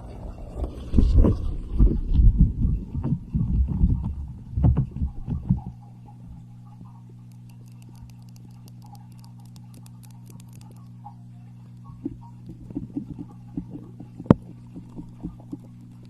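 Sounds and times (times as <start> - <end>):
low electrical hum: 0.0 - 16.0
faint crackles: 0.1 - 16.0
muffled thumps on microphone: 1.2 - 5.7.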